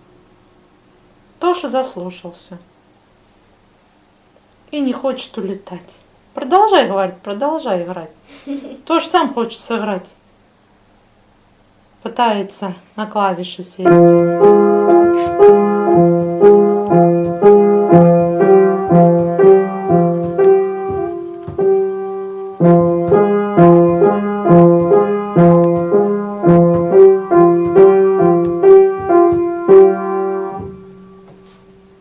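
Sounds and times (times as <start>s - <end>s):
piano chords: 13.8s - 32.0s.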